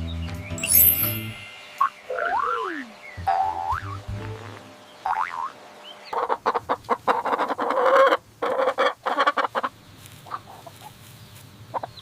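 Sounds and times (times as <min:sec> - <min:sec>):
chicken clucking: 0:03.7 - 0:12.0.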